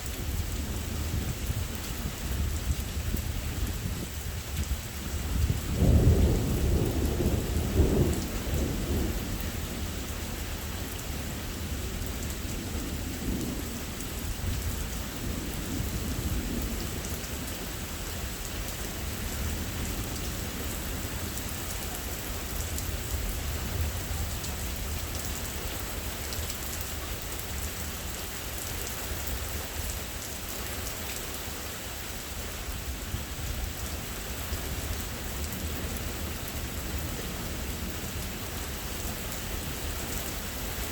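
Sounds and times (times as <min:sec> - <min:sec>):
steady rain falling: 0:00.0 - 0:40.9
thunder rumbling: 0:05.2 - 0:10.0.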